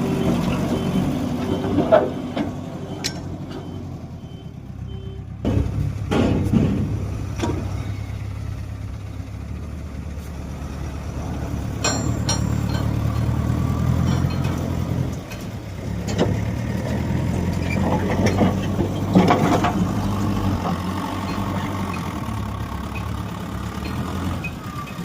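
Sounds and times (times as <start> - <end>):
reversing alarm beeping: 0.0 - 5.4
diesel engine running: 0.0 - 25.0
clunks: 0.1 - 9.0, 11.3 - 25.0.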